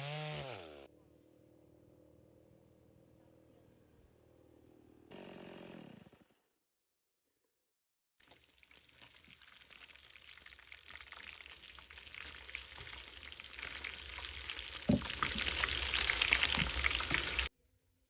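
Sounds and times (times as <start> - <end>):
fish sizzling over wood fire: 8.2 - 17.5
thump: 14.9 - 15.4.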